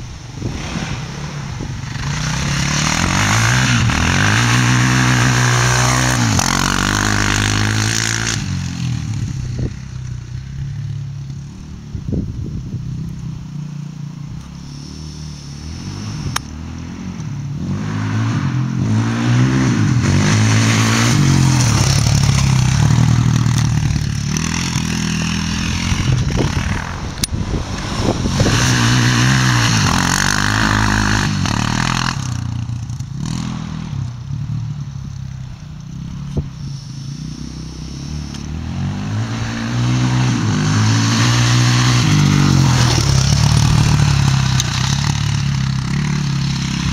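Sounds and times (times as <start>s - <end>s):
quad engine running hard: 0.5s - 10.5s, 17.6s - 34.1s, 36.1s - 46.9s.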